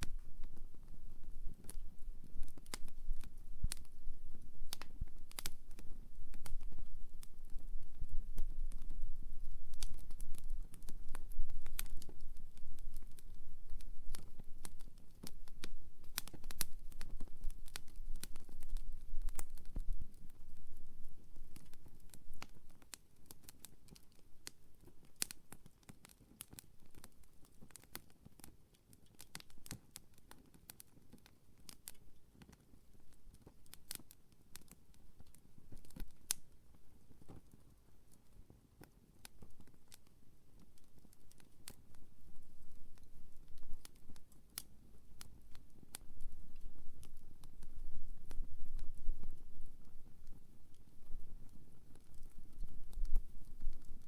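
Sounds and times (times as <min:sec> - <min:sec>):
campfire crackling and popping: 0:00.0 - 0:54.0
low rumble of fire: 0:00.0 - 0:54.0.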